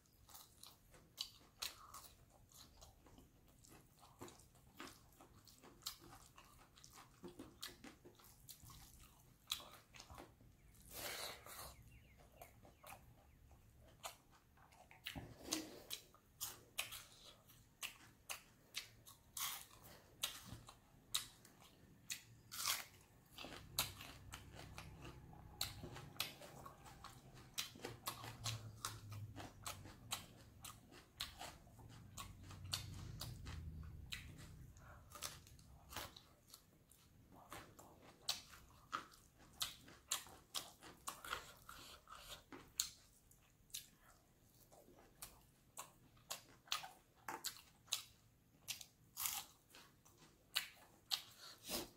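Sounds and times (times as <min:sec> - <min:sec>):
crunchy chewing: 0:00.0 - 0:51.9.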